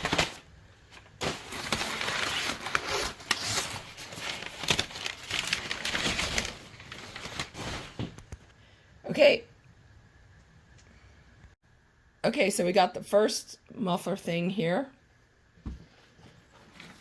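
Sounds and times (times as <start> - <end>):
packing paper rustling and crumpling: 0.0 - 8.5.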